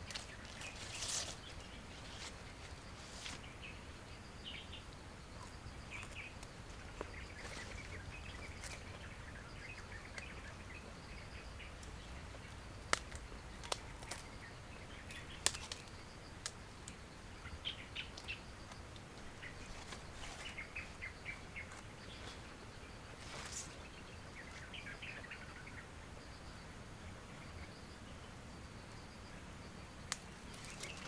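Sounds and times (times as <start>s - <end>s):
small birds chirping: 0.0s - 31.0s
sharp clicks or cracks: 15.4s - 16.6s.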